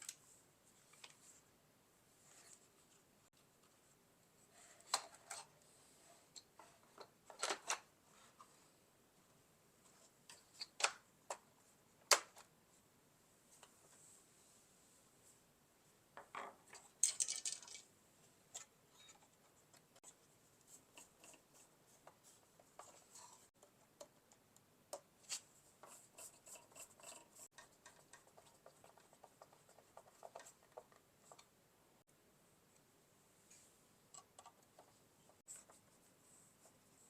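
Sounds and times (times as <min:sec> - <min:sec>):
plastic parts clicking and tapping: 0:06.4 - 0:07.9, 0:16.2 - 0:17.8
plastic clatter: 0:16.2 - 0:17.8.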